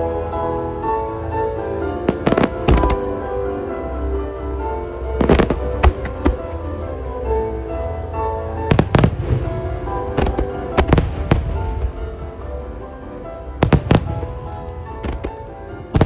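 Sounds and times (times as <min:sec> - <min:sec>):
piano music: 0:00.0 - 0:16.0
fireworks bursting in bangs: 0:02.1 - 0:03.2, 0:05.2 - 0:06.5, 0:08.7 - 0:12.7, 0:13.5 - 0:16.0.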